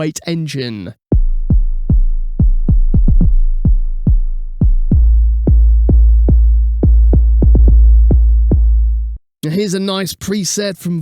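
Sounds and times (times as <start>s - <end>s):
deep bass hits dropping in pitch: 1.1s - 9.2s.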